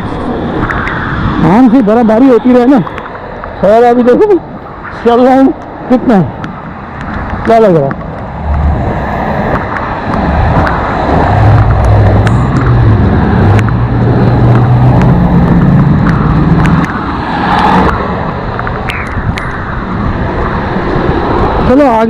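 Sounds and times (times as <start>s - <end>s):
loud rushing noise: 8.1s - 22.0s
vehicle engine passing by: 8.3s - 22.0s.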